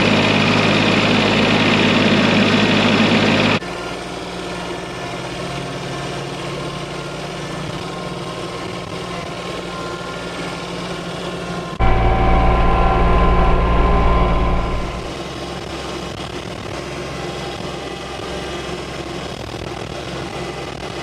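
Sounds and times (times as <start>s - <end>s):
engine idling: 11.8s - 15.1s.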